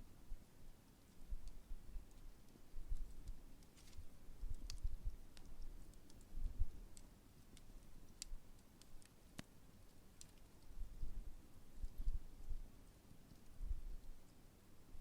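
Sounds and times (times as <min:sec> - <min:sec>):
campfire crackling and popping: 0:01.1 - 0:11.1.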